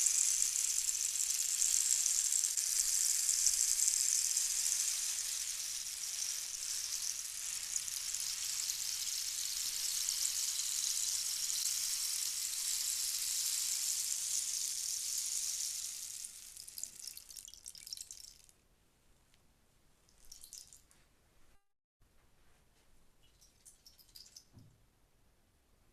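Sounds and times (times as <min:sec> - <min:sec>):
high rain-like hiss: 0:00.0 - 0:16.6.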